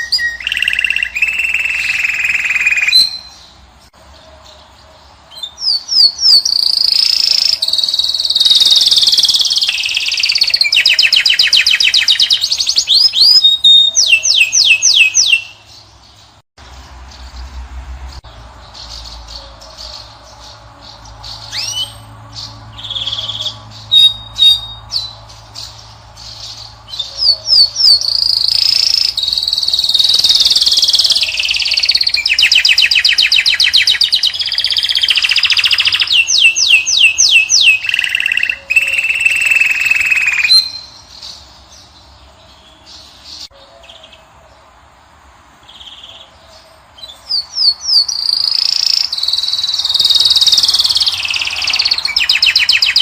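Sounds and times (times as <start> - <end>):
songbirds chirping and trilling: 0.0 - 53.0.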